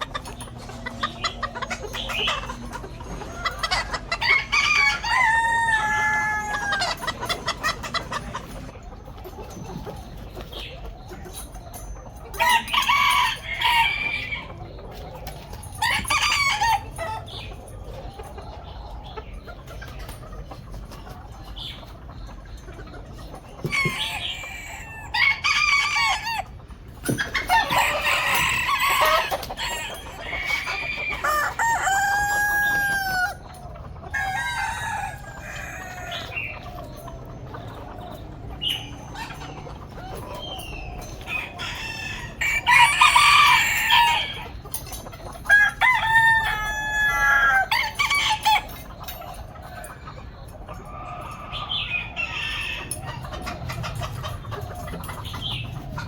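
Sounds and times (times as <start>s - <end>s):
chickens clucking and squawking: 0.0s - 56.0s
rooster crowing: 4.1s - 7.1s, 27.5s - 33.4s, 41.4s - 44.5s, 45.5s - 48.7s.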